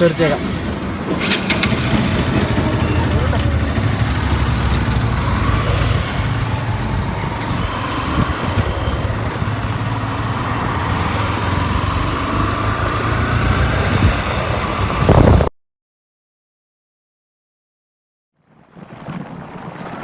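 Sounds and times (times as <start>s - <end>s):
motorcycle engine humming: 0.0s - 15.4s
road and air noise: 0.0s - 15.5s.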